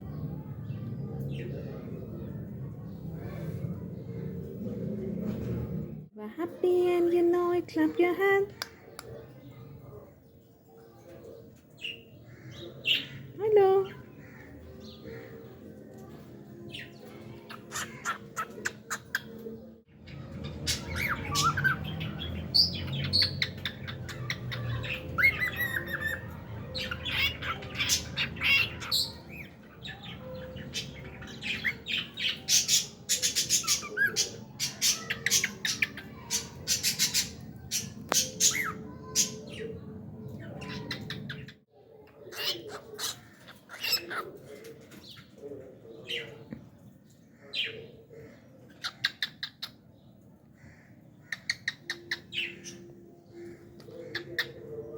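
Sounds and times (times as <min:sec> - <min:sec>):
cockatiel chirping and squawking: 0:17.5 - 0:19.3, 0:42.3 - 0:44.3.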